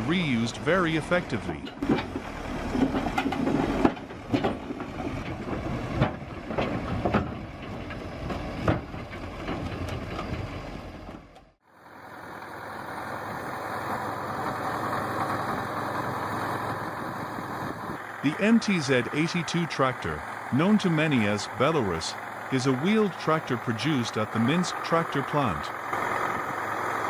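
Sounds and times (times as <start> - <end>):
engine running steadily: 0.0 - 27.0
heavy vehicle engine running: 0.0 - 27.0
clanks and knocks: 1.6 - 10.4.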